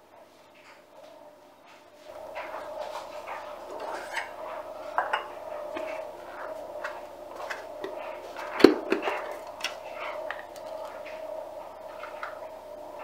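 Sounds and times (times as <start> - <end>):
steady low hum: 0.0 - 13.0
household objects clicking and knocking: 2.4 - 11.3.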